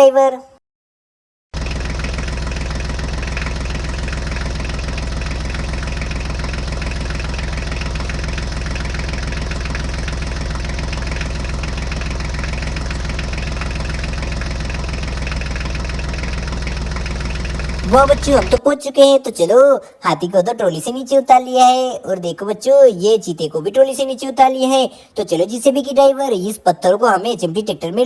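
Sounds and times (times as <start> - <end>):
tractor engine knocking putter: 1.6 - 18.6.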